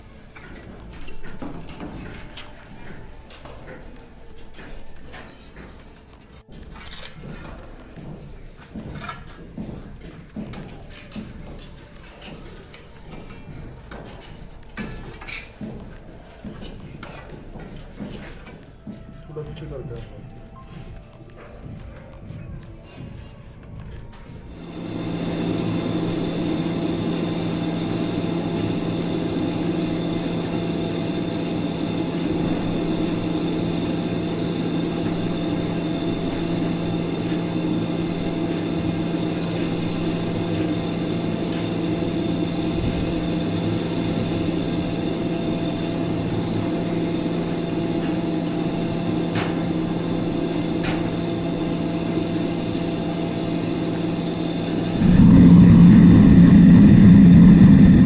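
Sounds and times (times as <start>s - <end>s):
steady machine hum: 0.0s - 9.7s, 24.2s - 58.0s.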